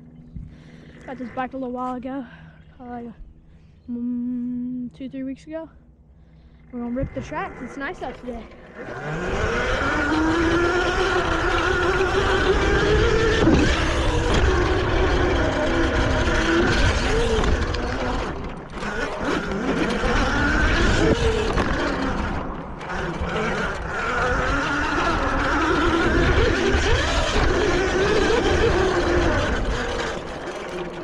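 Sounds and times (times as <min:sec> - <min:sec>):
dirt bike engine revving: 0:06.8 - 0:31.0.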